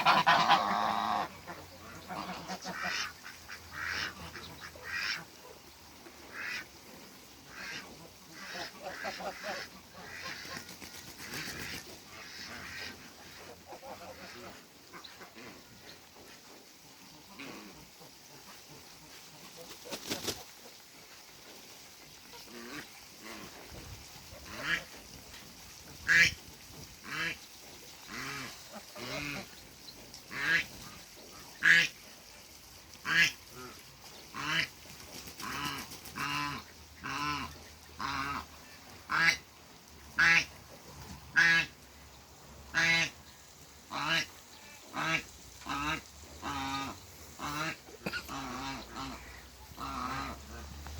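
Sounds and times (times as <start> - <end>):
geese honking: 0.0 - 5.2, 45.0 - 50.7.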